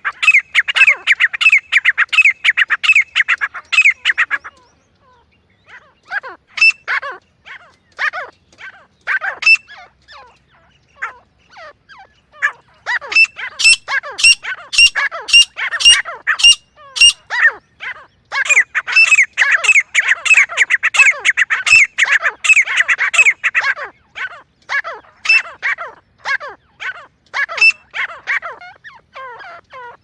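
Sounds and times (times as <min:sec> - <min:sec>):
francolins calling: 0:00.0 - 0:30.0.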